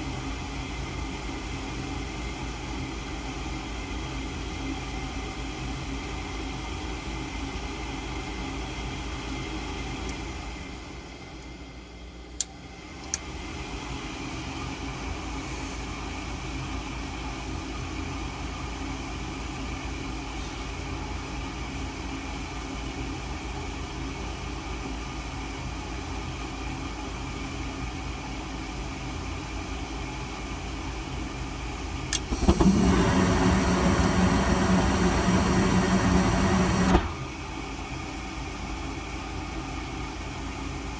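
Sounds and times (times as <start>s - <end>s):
furnace motor humming: 32.1s - 37.8s.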